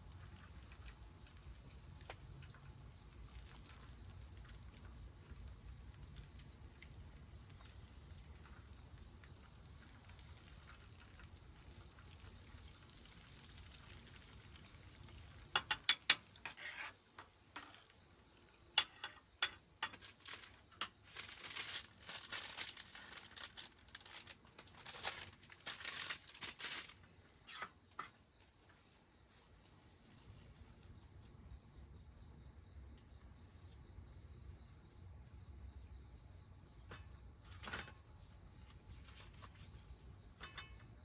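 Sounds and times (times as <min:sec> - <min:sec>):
objects clinking and rustling: 0:19.1 - 0:28.1.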